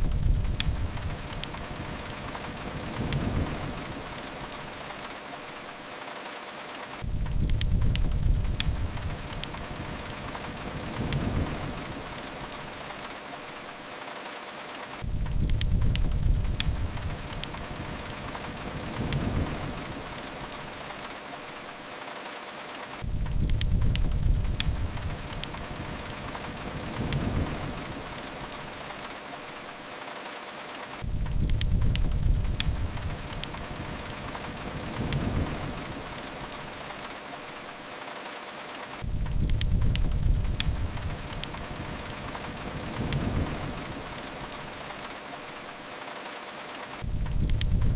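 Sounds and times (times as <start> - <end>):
fireplace crackles: 0.0 - 47.9
rain hiss: 0.0 - 47.9
deep rumble: 39.0 - 41.7, 47.0 - 47.9
deep low rumble: 47.1 - 47.9.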